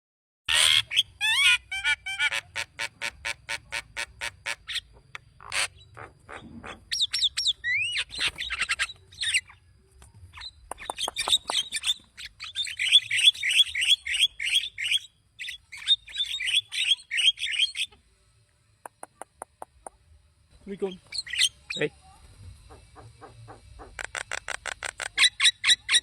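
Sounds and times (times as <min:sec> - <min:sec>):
myna calling: 0:20.7 - 0:26.0.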